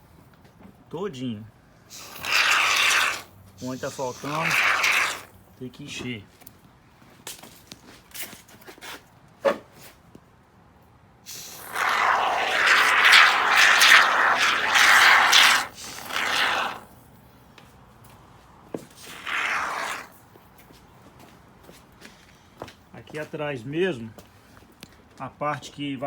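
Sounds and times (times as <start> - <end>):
spray foam hissing from can: 1.9 - 5.3, 11.3 - 16.8, 19.0 - 20.1.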